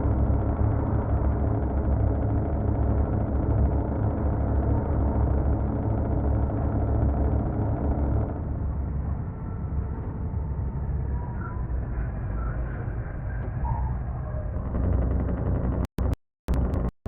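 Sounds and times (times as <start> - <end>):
truck engine running: 0.0 - 9.2, 14.4 - 17.0.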